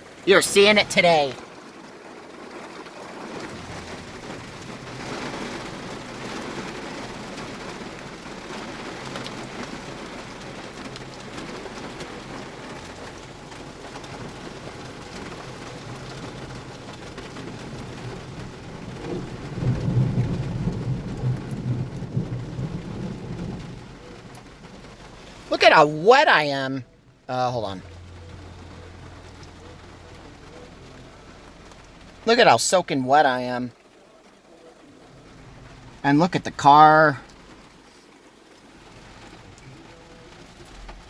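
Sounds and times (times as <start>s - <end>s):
heavy rain pelting: 0.0s - 41.0s
deep rumble of thunder: 17.6s - 25.2s.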